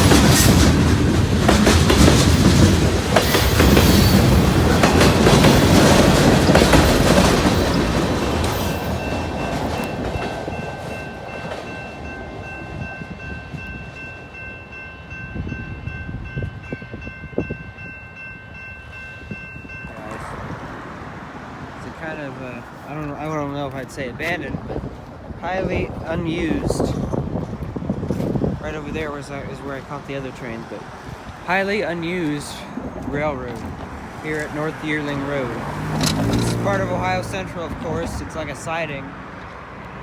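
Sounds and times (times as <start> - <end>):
freight train wheels clattering: 0.0 - 14.8, 30.6 - 39.9.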